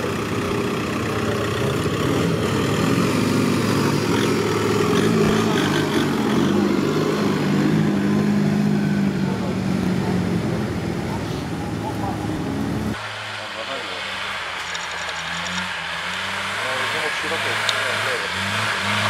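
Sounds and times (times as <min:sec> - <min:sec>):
car engine running: 0:00.0 - 0:19.0
tyres over cobblestones: 0:14.4 - 0:19.0.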